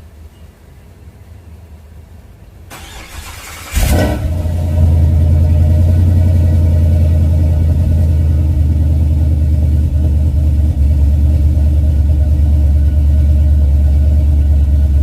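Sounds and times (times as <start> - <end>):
starter motor cranking: 2.7 - 4.0
engine revving and idling: 2.8 - 15.0.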